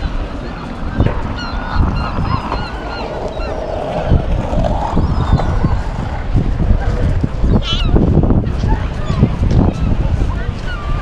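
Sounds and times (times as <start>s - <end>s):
seagulls squawking: 0.0s - 6.9s, 7.5s - 8.0s.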